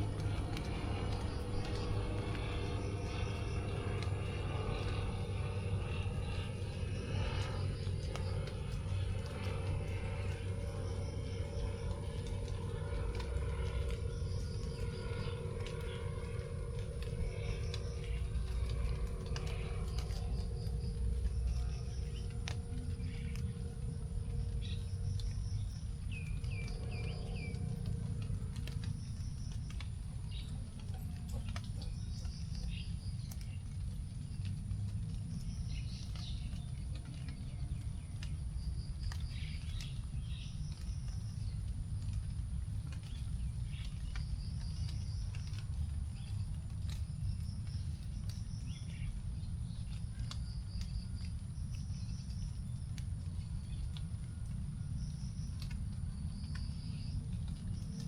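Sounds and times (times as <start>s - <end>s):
birds chirping: 0.0s - 33.8s
low rumbling background: 0.0s - 58.0s
raindrops ticking onto leaves: 0.0s - 58.0s.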